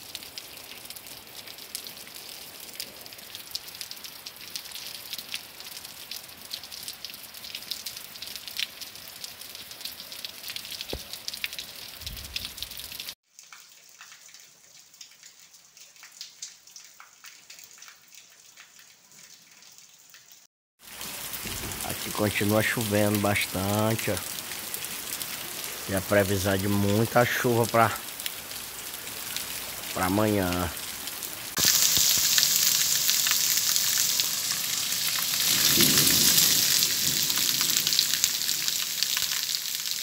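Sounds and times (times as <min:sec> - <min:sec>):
rain falling on a street: 0:00.0 - 0:40.0.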